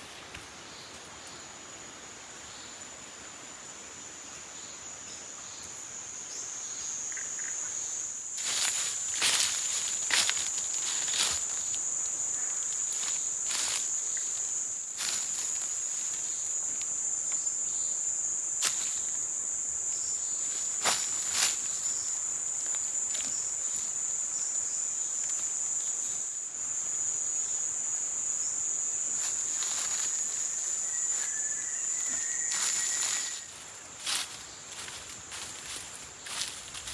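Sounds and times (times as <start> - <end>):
insects droning: 0.0 - 36.9.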